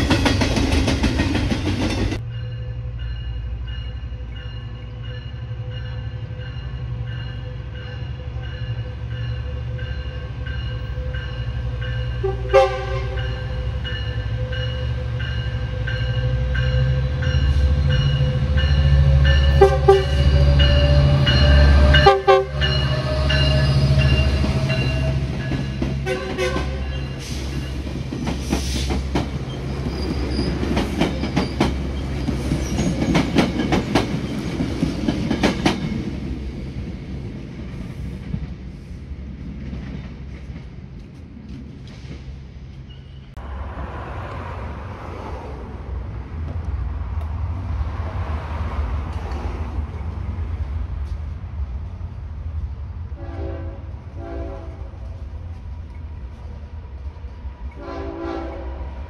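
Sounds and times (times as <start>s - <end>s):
diesel locomotive engine rumble: 0.0s - 59.0s
locomotive bell ringing: 2.2s - 26.0s
train horn toots: 12.0s - 27.2s, 53.2s - 55.1s, 57.7s - 59.0s.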